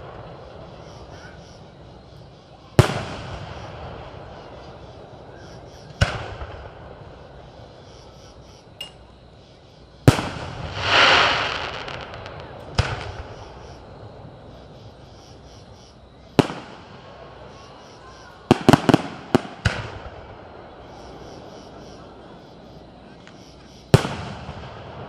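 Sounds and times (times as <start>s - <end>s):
firework hiss: 10.1s - 14.2s
fireworks shells bursting: 10.2s - 13.6s.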